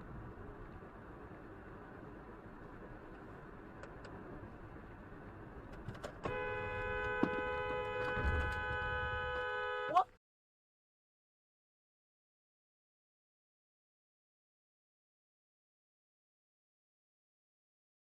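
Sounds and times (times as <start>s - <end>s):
road and tyre noise: 0.0s - 10.2s
two-tone car horn blare: 6.2s - 10.1s.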